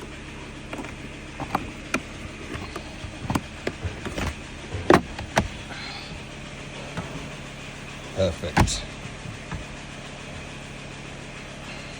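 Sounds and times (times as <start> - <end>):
hard plastic clicks and knocks: 0.0 - 6.2, 8.3 - 10.5
steady low hum: 0.0 - 11.9.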